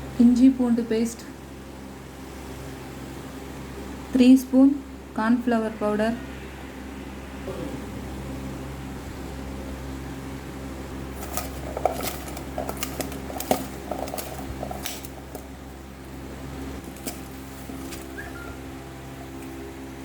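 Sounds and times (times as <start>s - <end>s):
steady low hum: 0.0s - 20.0s
utensil clinking against a bowl: 11.2s - 15.6s.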